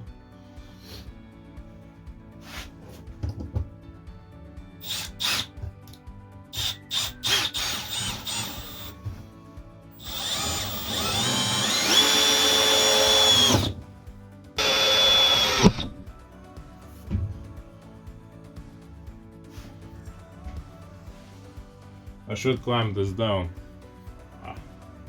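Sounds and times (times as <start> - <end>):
sharp drill click: 4.8 - 5.6, 6.6 - 9.0, 10.0 - 13.8, 14.6 - 16.0
cordless drill whining: 4.8 - 5.8, 6.5 - 9.2, 9.9 - 13.8, 14.6 - 16.0.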